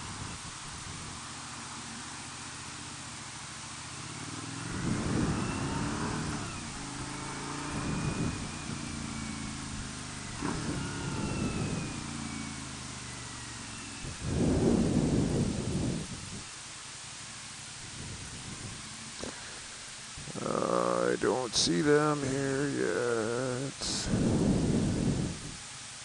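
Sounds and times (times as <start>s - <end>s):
wind rushing over microphone: 0.0s - 1.3s, 4.3s - 16.6s, 17.8s - 22.8s, 23.6s - 25.6s
motorcycle engine revving: 0.0s - 25.6s.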